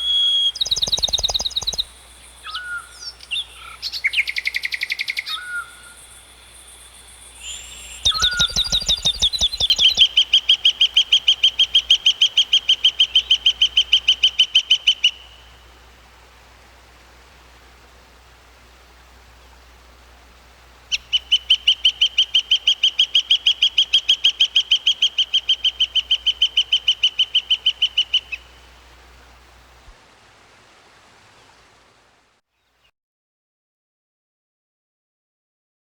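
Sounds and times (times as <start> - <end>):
bird calling rapid high notes: 0.0 - 3.8, 7.4 - 10.3.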